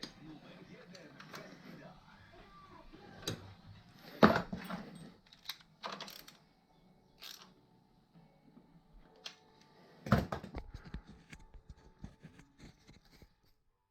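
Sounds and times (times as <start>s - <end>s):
objects clinking and knocking: 4.0s - 6.4s.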